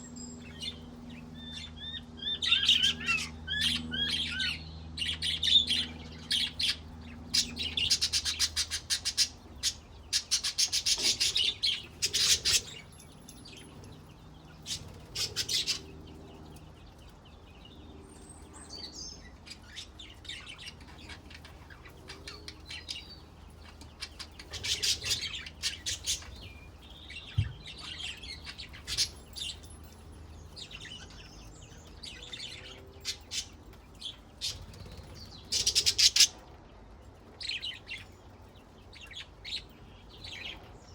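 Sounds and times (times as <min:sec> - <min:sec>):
budgerigars chirping: 0:01.4 - 0:12.9, 0:14.6 - 0:16.0, 0:19.2 - 0:29.6, 0:34.4 - 0:36.4.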